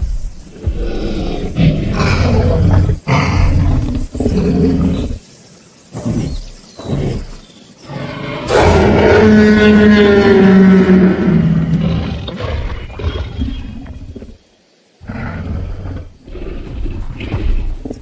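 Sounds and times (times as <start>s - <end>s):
dinosaur growls: 0.6s - 5.2s, 6.0s - 14.4s, 15.0s - 18.0s
dinosaur roar falling in pitch: 8.4s - 12.4s.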